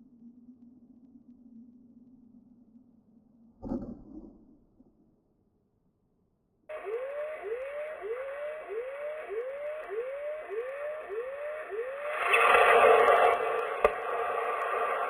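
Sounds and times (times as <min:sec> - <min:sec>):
siren-like whooping tone: 0:06.7 - 0:15.0.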